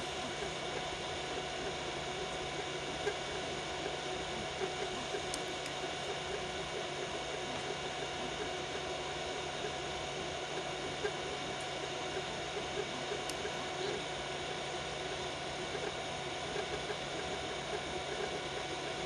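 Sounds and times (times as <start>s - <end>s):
motor hum: 0.0s - 19.0s
printer fans whirring: 0.0s - 19.0s.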